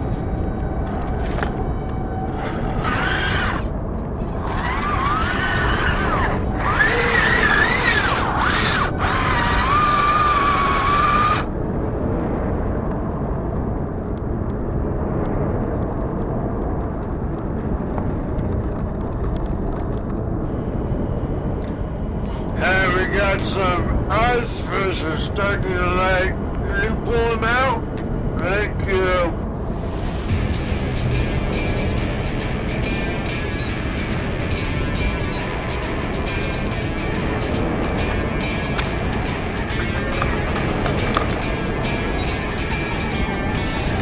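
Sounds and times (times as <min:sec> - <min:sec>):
electric motor and gears whining: 0:00.0 - 0:11.6, 0:30.0 - 0:44.0
low rumbling noise: 0:00.0 - 0:44.0.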